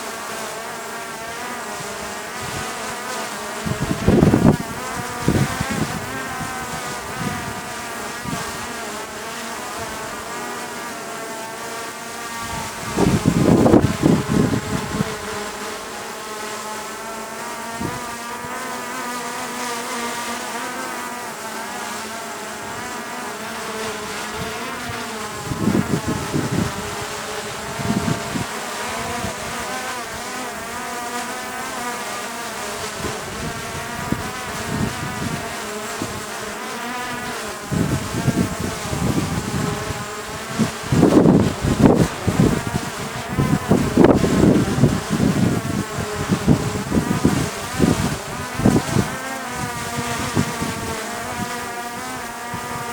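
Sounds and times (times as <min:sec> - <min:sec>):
wind buffeting microphone: 0:03.6 - 0:08.8, 0:12.4 - 0:15.6, 0:17.7 - 0:18.6, 0:24.0 - 0:30.3, 0:32.9 - 0:36.3, 0:37.6 - 0:52.9.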